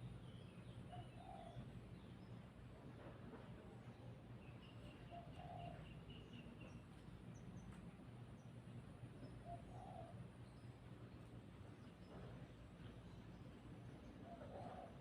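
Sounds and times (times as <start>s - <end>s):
faint birds chirping: 3.4s - 15.0s.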